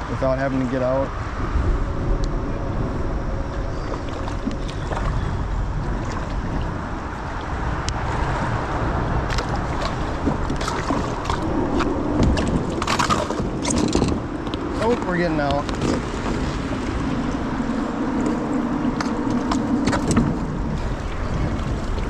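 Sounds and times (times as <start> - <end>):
water rushing: 0.0 - 22.0
wind rumble on microphone: 0.0 - 22.0
paddle knocks and clicks: 9.3 - 17.5, 18.2 - 22.0.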